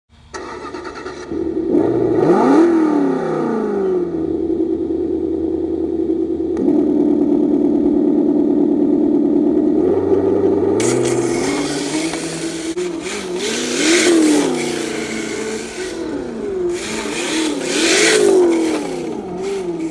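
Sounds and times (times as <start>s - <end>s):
simulated engine starting: 0.2s - 4.9s, 10.0s - 19.9s
engine idling: 4.2s - 19.9s
engine throttle blip: 10.8s - 19.9s.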